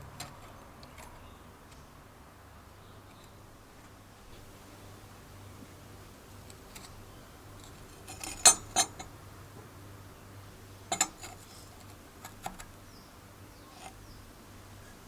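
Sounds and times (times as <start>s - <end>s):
metal pieces clinking: 10.9s - 11.4s.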